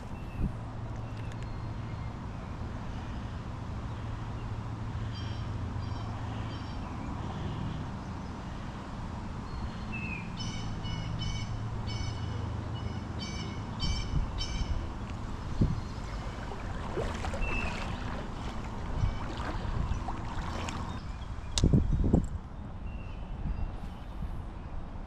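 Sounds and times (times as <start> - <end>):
wind on microphone: 0.0 - 0.8, 13.8 - 25.0.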